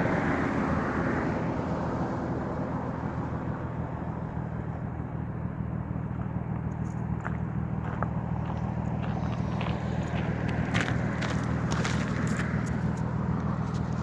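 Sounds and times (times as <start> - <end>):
car engine idling: 1.4 - 14.0.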